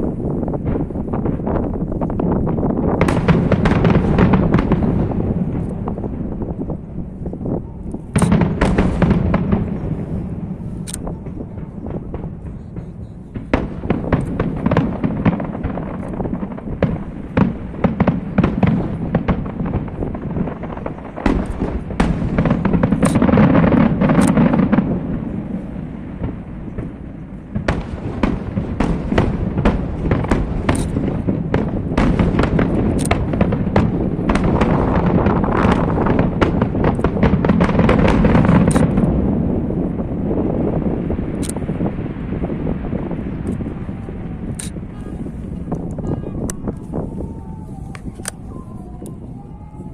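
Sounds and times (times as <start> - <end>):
fireworks cracks and booms: 0.0 - 49.9.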